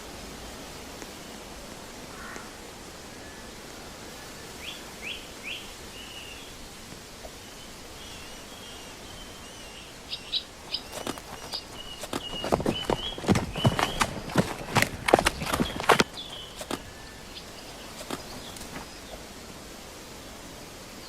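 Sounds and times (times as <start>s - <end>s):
outdoor background hiss: 0.0s - 21.0s
small birds chirping: 7.3s - 19.3s
hooves clopping: 10.0s - 19.0s.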